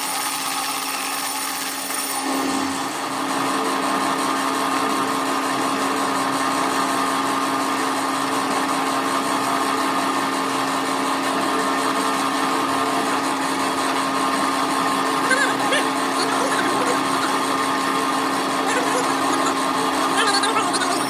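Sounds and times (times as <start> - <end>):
workshop machine humming: 11.2 - 21.0.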